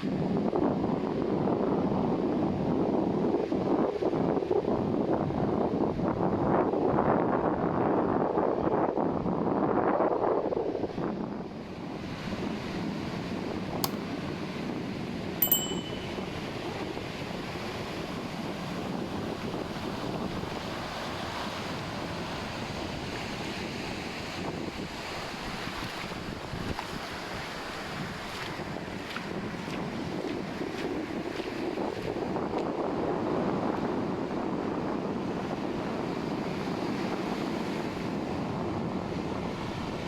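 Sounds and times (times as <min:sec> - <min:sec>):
brief high tone: 0:15.4 - 0:16.4
wind buffeting microphone: 0:16.1 - 0:40.0.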